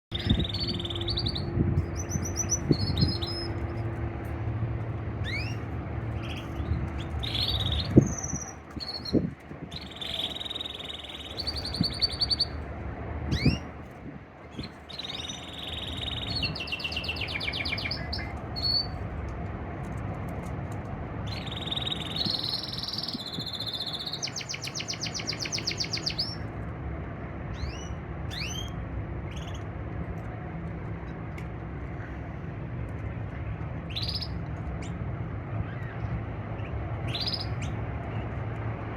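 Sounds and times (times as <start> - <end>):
canary singing: 0.1 - 4.0, 5.2 - 12.6, 13.3 - 13.7, 14.5 - 19.0, 21.3 - 26.4, 27.5 - 29.7, 33.8 - 35.0, 35.6 - 38.3.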